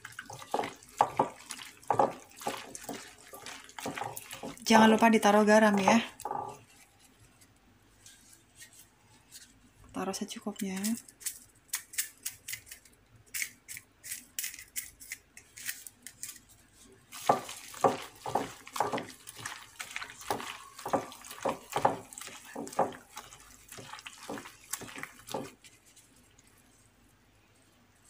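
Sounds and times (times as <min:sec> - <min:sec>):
wet squelching by hand in bowl: 0:00.0 - 0:06.9, 0:17.1 - 0:26.6.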